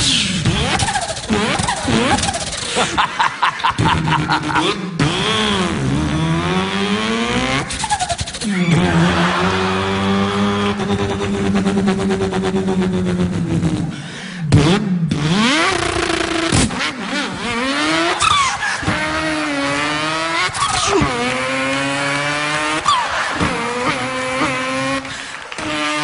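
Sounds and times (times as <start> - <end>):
man imitating engine revving: 0.2 - 26.0.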